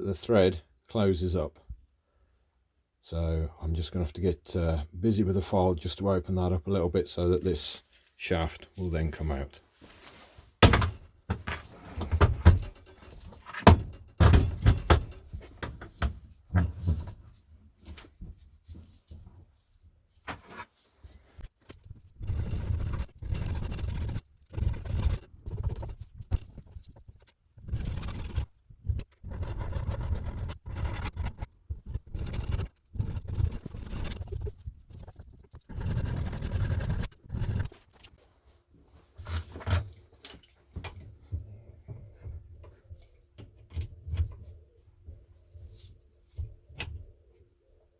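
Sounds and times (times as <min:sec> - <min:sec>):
sharp metal knocks: 0:10.6 - 0:16.8
hand file scraping steel: 0:21.8 - 0:37.9.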